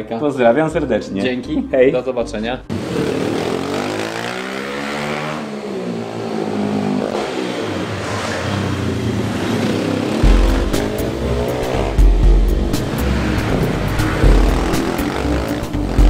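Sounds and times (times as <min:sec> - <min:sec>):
pit bike engine revving: 0:02.7 - 0:16.0
pounding low music beat: 0:10.2 - 0:16.0.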